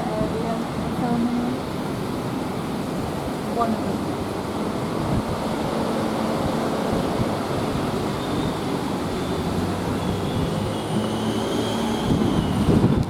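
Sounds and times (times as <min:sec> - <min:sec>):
road traffic rush: 0:00.0 - 0:13.0.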